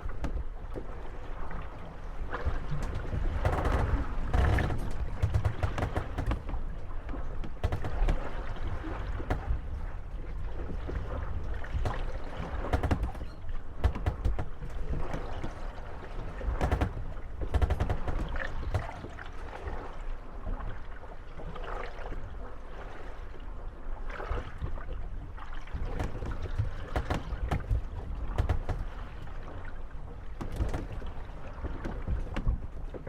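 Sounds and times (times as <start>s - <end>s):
wooden boats creaking: 0.0s - 20.0s, 25.2s - 33.0s
wooden boats knocking together: 2.4s - 19.3s, 25.7s - 29.5s, 30.2s - 33.0s.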